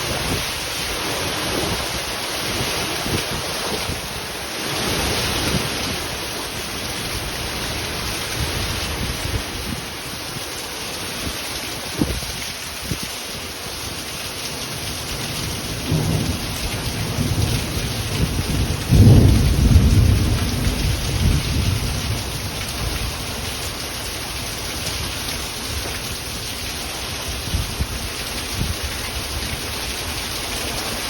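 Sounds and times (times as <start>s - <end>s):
heavy rain falling: 0.0s - 31.0s
thunder rumbling: 15.8s - 23.6s.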